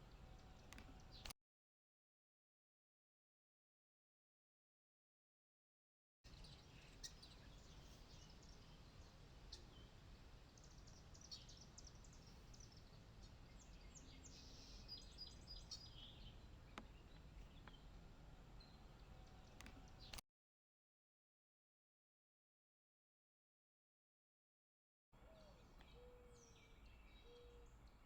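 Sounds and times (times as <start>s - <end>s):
faint bird chirps: 6.3s - 18.0s, 25.2s - 28.0s.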